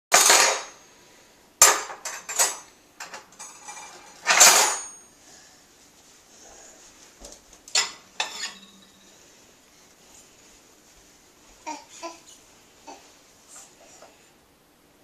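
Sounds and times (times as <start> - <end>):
silverware and dishes clinking: 0.1 - 0.8, 1.6 - 5.1, 7.7 - 9.2.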